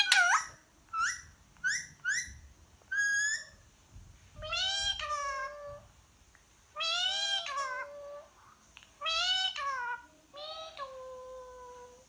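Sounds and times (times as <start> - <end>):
high meow-like calls: 0.0 - 0.4.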